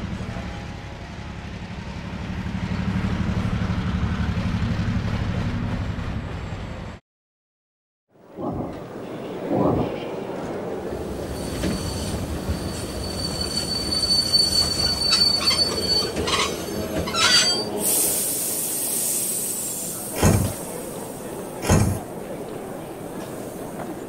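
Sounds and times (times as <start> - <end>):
train rumbling: 0.0 - 7.0, 8.5 - 24.0
train wheel squeal: 11.1 - 18.5
sudden hiss: 17.8 - 21.0
heavy thump: 20.2 - 20.6, 21.6 - 22.0.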